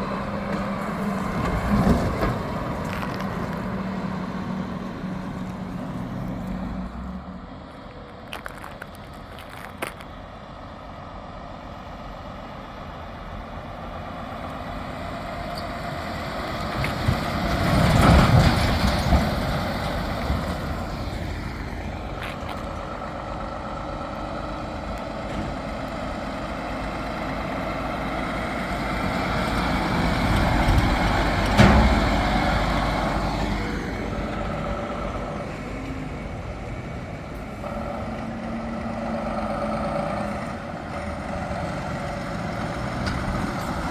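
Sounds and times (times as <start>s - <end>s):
heavy trucks driving past: 0.0s - 43.9s.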